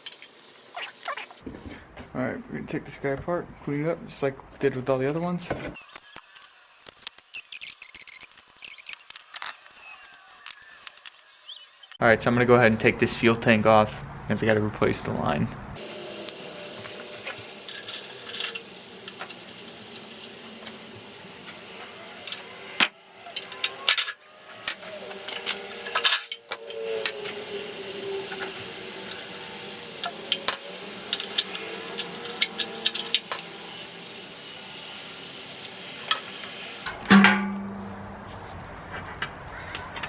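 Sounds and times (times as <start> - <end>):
metal tools clinking: 16.0 - 20.4.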